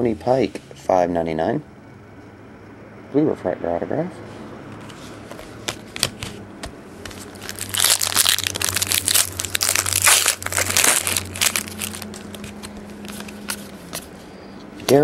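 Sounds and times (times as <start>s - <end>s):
wrapper crinkling and tearing: 7.2s - 13.8s.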